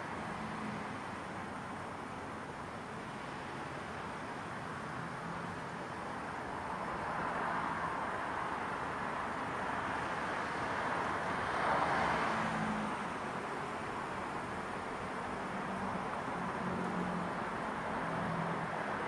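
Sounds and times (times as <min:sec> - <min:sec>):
road traffic hum: 0:00.0 - 0:19.0.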